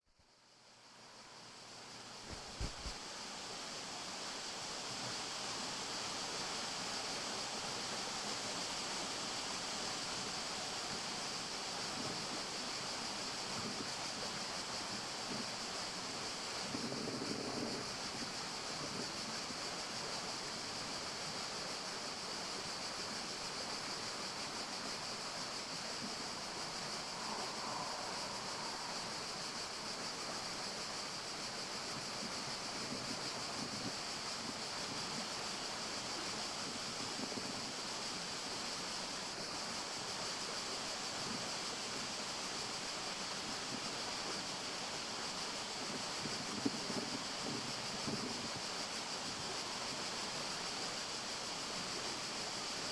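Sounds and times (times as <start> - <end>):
forest ambience hiss: 0.0 - 52.9
faint soft sounds: 0.1 - 3.1, 11.9 - 38.6.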